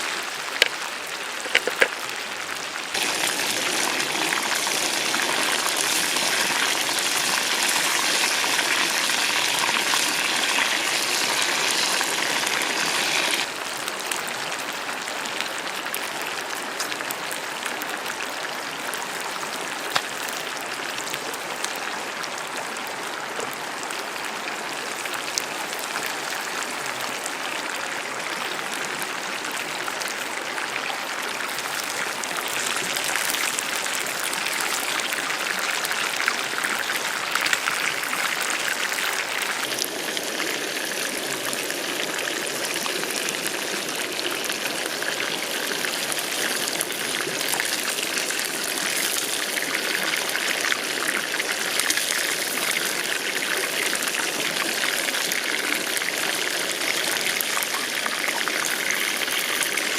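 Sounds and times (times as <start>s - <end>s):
oil crackling: 1.4s - 2.1s, 3.0s - 13.6s
hot oil sizzling: 1.4s - 13.9s, 31.4s - 59.9s.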